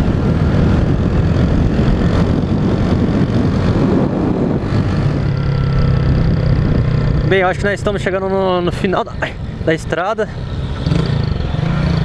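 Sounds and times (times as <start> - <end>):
wind rush over microphone: 0.0 - 9.6
motorcycle engine running: 0.0 - 12.0.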